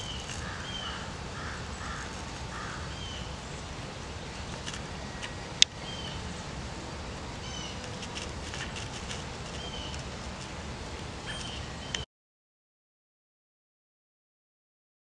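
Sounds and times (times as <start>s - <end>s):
outdoor background hiss: 0.0s - 12.1s
high bird chirps: 11.2s - 12.0s.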